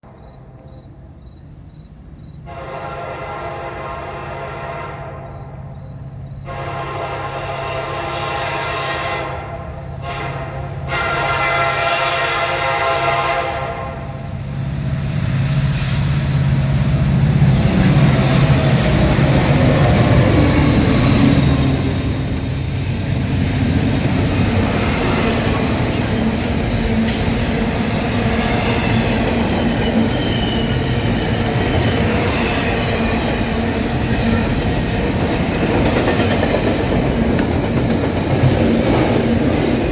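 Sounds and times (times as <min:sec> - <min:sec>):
locomotive horn blasts: 0:02.5 - 0:05.3, 0:06.5 - 0:14.2
freight cars clattering on rails: 0:17.2 - 0:39.9.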